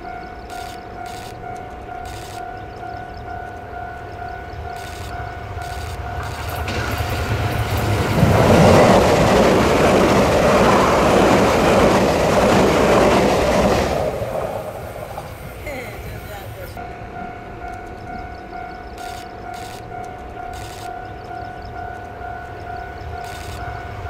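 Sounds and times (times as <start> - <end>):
crossing warning signal tone: 0.0 - 9.9, 16.0 - 24.0
electric train passing: 0.0 - 24.0.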